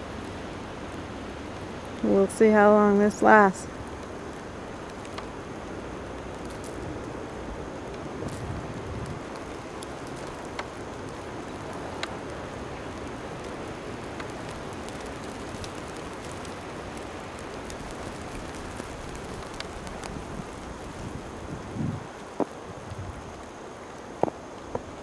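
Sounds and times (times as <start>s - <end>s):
blizzard wind rushing: 1.6s - 25.0s
light ticks: 3.8s - 5.3s, 9.3s - 12.3s, 13.0s - 20.6s.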